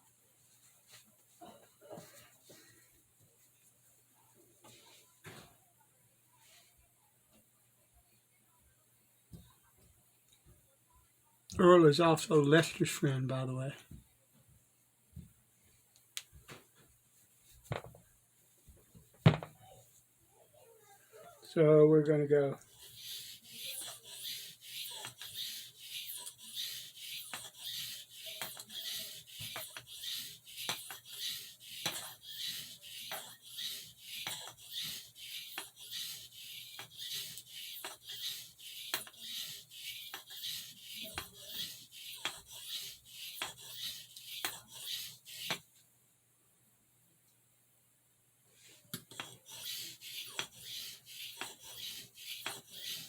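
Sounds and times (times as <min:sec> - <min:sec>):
knife blade scraping on sharpening stone: 0:22.8 - 0:45.6.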